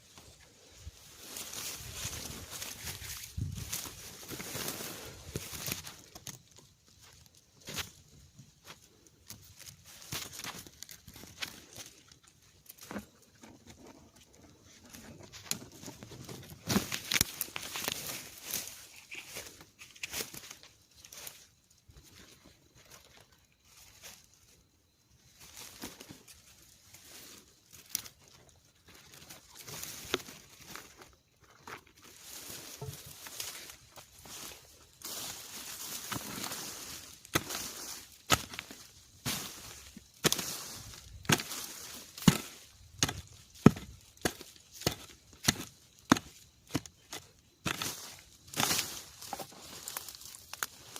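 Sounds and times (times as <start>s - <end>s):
rustling and crackling of litter: 0.0s - 50.9s
tearing bamboo shoots: 14.8s - 20.7s, 32.1s - 50.9s
hand tool chopping into ground: 36.0s - 50.7s.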